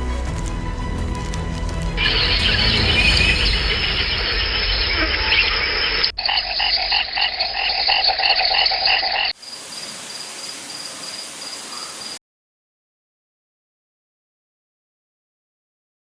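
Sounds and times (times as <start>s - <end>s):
even hiss: 0.4s - 12.2s
frogs calling in chorus: 4.9s - 12.2s
rhythmic frog croaking: 6.2s - 9.4s.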